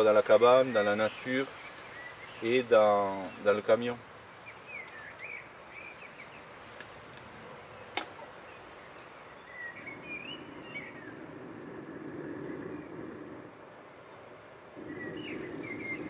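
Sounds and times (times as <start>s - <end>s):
birds chirping: 0.0s - 16.0s
low rushing noise: 9.2s - 16.0s.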